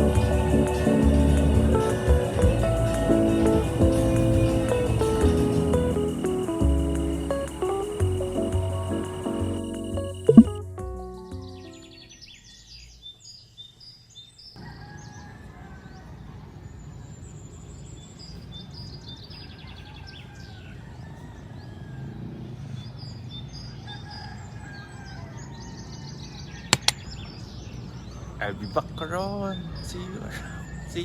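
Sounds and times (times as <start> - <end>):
birds chirping: 0.0 - 31.0
sharp clicks: 26.7 - 27.0.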